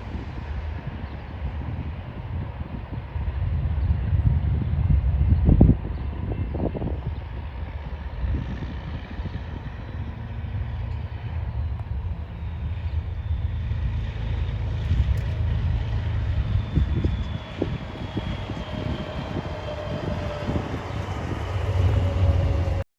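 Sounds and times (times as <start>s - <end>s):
diesel locomotive engine drone: 0.0s - 22.9s
train rumbling: 0.0s - 22.9s
faint high wheel squeal: 16.0s - 22.8s.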